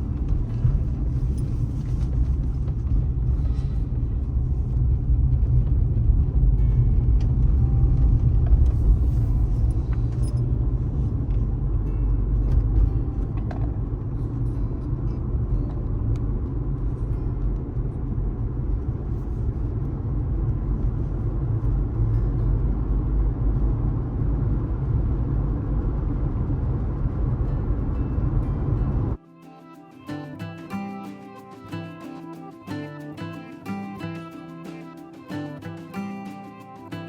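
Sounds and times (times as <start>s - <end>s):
car driving at highway speed: 0.0s - 29.2s.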